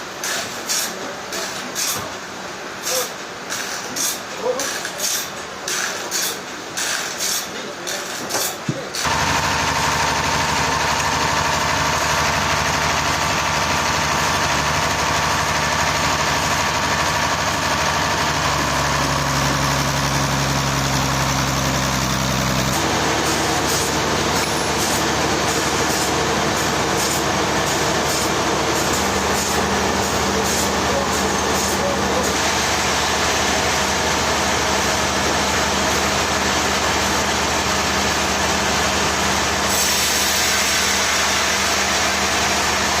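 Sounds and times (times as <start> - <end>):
engine running: 9.0 - 43.0.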